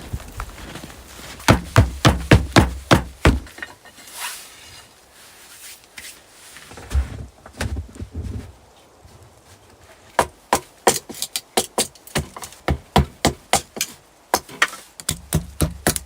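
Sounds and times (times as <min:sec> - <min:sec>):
sharp knocks: 0:01.5 - 0:03.5.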